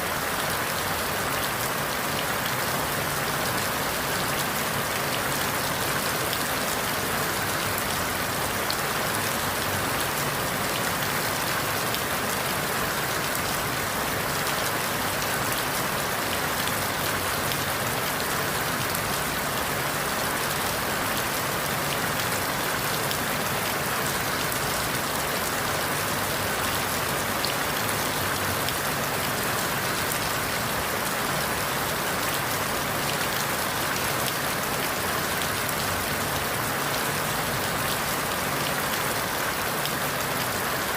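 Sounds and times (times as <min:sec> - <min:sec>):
rain falling through leaves: 0:00.0 - 0:40.9.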